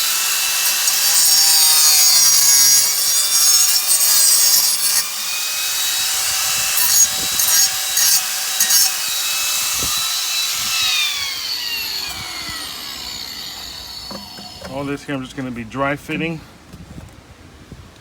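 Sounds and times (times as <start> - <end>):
power saw cutting plastic pipe: 0.0 - 15.0
saw blade spinning down: 6.8 - 14.9.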